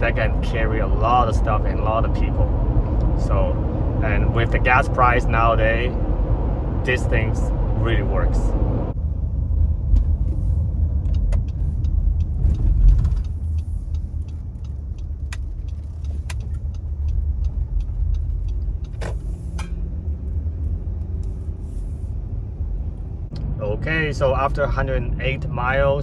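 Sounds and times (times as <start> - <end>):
car cabin road rumble: 0.0 - 26.0
light ticks: 11.0 - 21.4.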